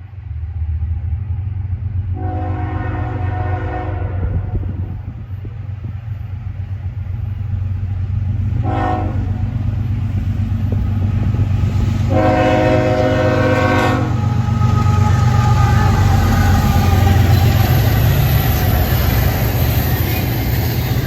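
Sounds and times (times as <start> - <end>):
locomotive engine rumble: 0.2 - 21.0
locomotive air horn blasts: 2.2 - 4.8, 8.6 - 9.5, 12.0 - 17.9.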